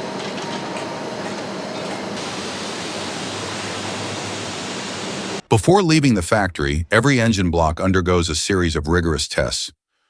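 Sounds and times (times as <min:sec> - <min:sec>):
industrial machinery running: 0:00.0 - 0:05.5
faint hum: 0:00.0 - 0:09.0.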